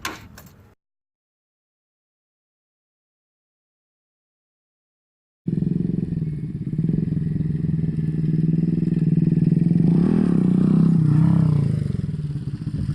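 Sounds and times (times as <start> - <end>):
motorcycle engine idling and revving: 5.5 - 12.9.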